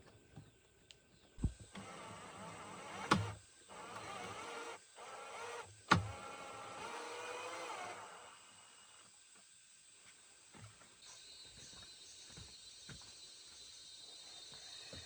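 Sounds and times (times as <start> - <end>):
electric drill motor whining: 1.4 - 9.1.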